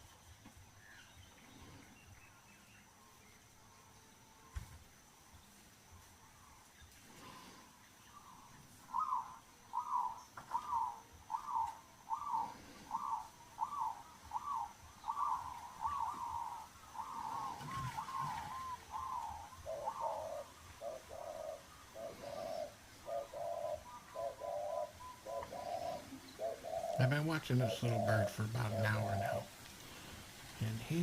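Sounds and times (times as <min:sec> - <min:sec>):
lower-pitched bird notes: 0:08.1 - 0:29.5.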